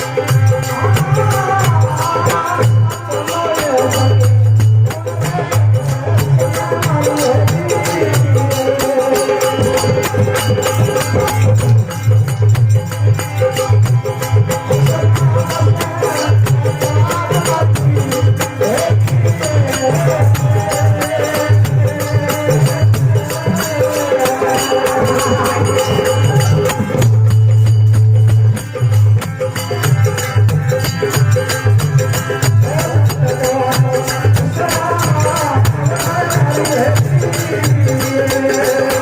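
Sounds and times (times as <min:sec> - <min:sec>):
hand drum rhythm: 0:00.0 - 0:39.0.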